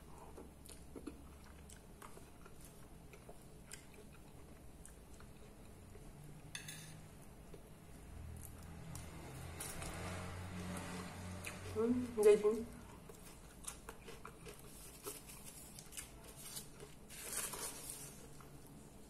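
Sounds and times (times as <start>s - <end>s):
chewing salad: 0.0s - 19.0s.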